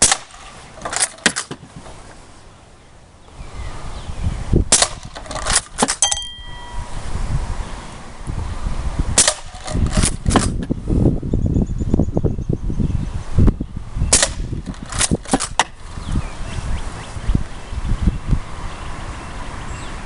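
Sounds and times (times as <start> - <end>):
air rifle shots: 0.0 - 1.6, 4.7 - 6.2, 9.2 - 10.7, 14.1 - 15.8
short metallic ring: 5.9 - 7.1.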